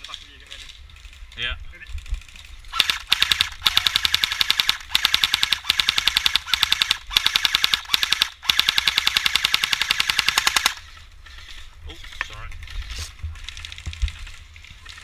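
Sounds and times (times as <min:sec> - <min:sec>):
airsoft gun firing bursts: 0:02.7 - 0:10.8.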